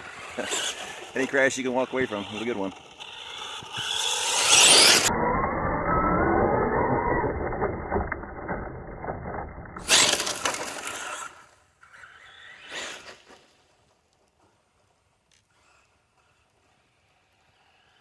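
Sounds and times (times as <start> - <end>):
toy truck electric motor whining: 0.0 - 13.6, 15.3 - 18.0
tyre noise on ground: 9.8 - 11.5.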